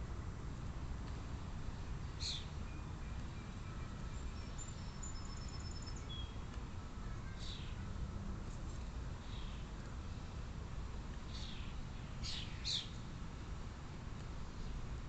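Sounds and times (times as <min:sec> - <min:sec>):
small bird chirps and trill: 0:02.2 - 0:02.8, 0:03.4 - 0:06.4, 0:07.3 - 0:07.8, 0:11.3 - 0:13.0.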